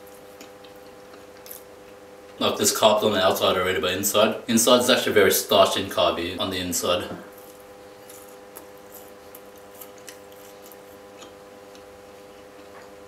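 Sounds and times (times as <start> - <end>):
chewing pastry: 0.0 - 2.4, 7.2 - 13.0
faint hum: 0.0 - 13.0.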